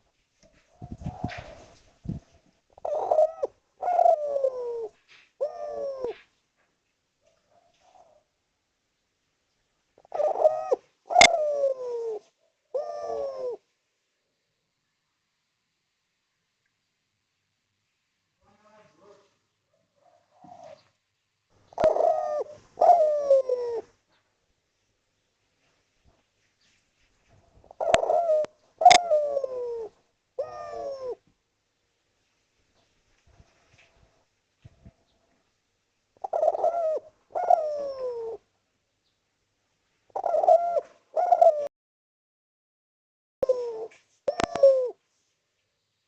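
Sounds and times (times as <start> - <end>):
dove cooing: 0.5 - 6.3, 7.4 - 8.3, 10.0 - 13.7, 20.0 - 20.9, 21.7 - 24.0, 27.6 - 31.2, 36.2 - 38.5, 40.1 - 41.7, 43.4 - 45.0.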